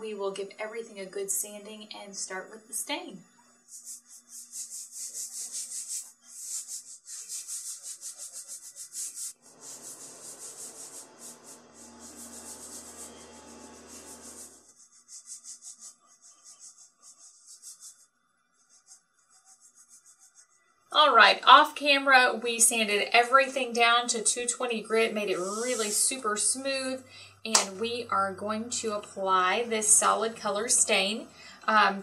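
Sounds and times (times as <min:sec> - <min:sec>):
paintbrush stroking on wood: 0:03.6 - 0:20.6, 0:25.3 - 0:26.2.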